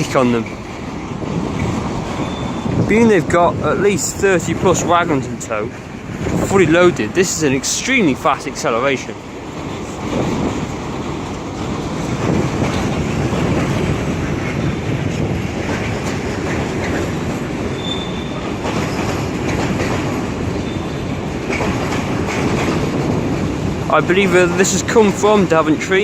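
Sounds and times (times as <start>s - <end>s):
freight train rolling past: 0.0s - 26.0s
wheels rumbling and clattering on rails: 0.0s - 26.0s
high wheel squeal: 2.2s - 2.8s, 17.7s - 19.2s, 20.6s - 21.1s.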